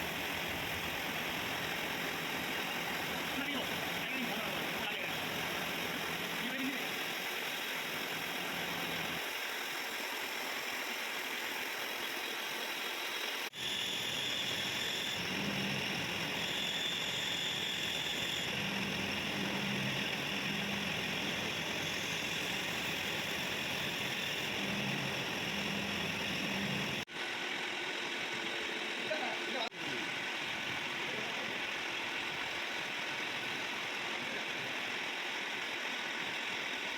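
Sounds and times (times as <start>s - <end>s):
metal-cutting machine running: 0.0s - 9.4s, 13.4s - 36.9s
faint steady whine: 0.0s - 36.9s.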